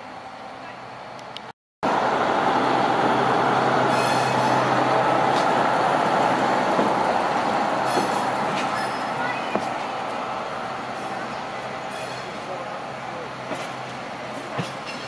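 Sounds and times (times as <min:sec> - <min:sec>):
diesel railcar engine: 0:00.0 - 0:15.0.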